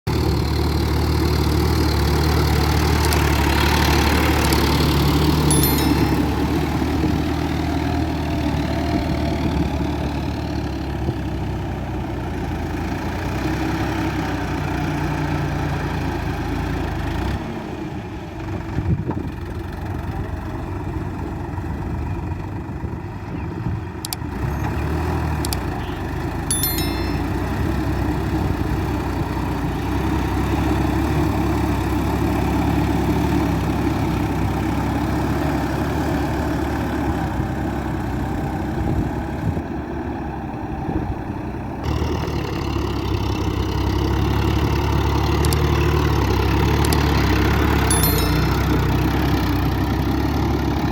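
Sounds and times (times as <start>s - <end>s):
brief high ding: 5.5s - 6.8s, 26.5s - 27.7s, 47.9s - 49.0s
sharp clicks: 25.4s - 25.7s, 45.4s - 45.7s.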